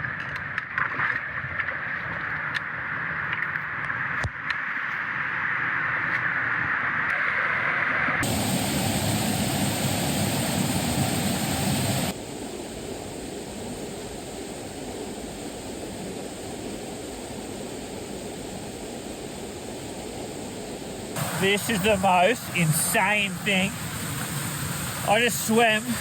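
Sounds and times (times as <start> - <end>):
waterfall rushing: 8.2 - 12.1, 21.2 - 26.0.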